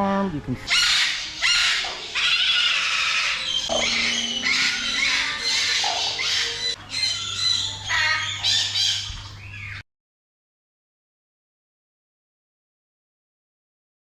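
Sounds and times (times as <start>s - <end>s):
parrots squawking: 0.7s - 9.8s.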